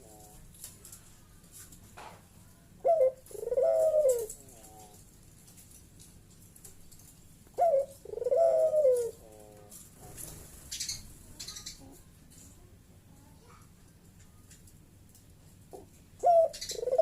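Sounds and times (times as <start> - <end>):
dove cooing: 0.0 - 0.5, 2.8 - 5.0, 7.5 - 10.9, 15.7 - 17.0.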